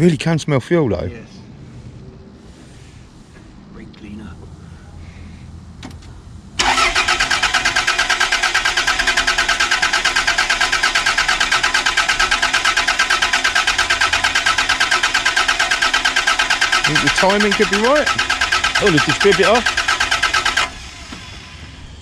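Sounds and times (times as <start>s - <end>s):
starter motor cranking engine: 6.6s - 22.0s.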